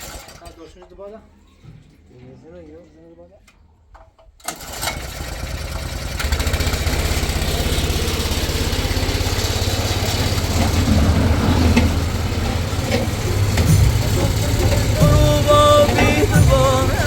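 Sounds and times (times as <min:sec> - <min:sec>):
engine chugging: 0:04.5 - 0:17.0.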